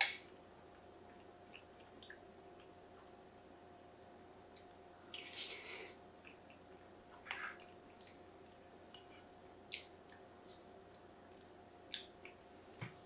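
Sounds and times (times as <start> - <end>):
faint steady hum: 0.0 - 13.0
wet smacks and mouth clicks: 6.2 - 8.2.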